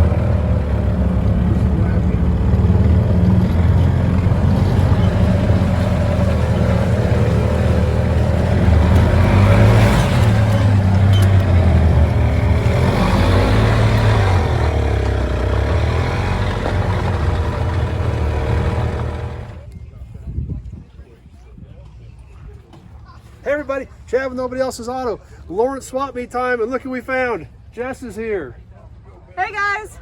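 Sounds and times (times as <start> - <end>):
vehicle engine running: 0.0 - 19.7.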